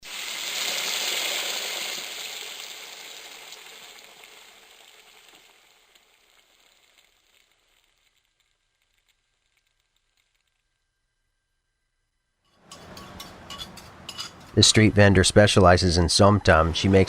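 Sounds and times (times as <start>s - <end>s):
steady hiss: 0.0s - 11.3s.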